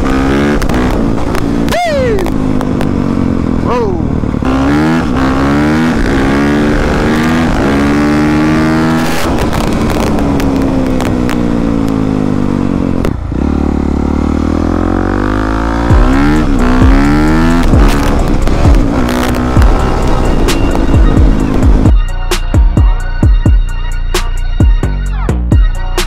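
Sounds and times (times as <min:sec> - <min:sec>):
dirt bike engine revving: 0:00.0 - 0:21.9.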